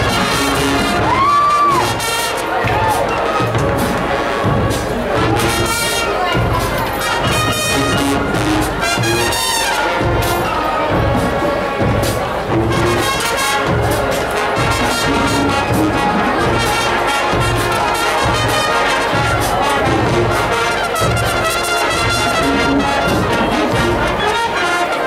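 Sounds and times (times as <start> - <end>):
steady drum beat: 0.0 - 24.4
marching band brass: 0.0 - 25.0.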